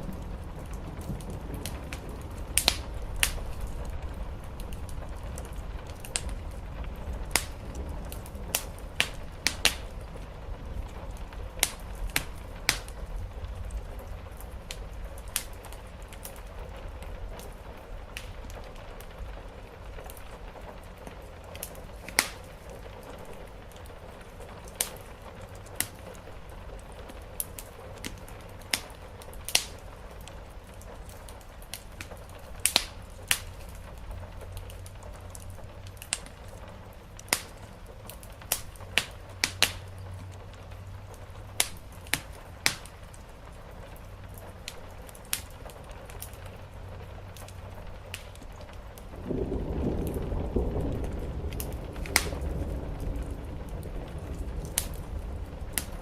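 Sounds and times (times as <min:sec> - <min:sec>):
rain on the roof: 0:00.0 - 0:56.0
wood fire crackling and popping: 0:00.0 - 0:56.0
low rumble: 0:49.0 - 0:56.0.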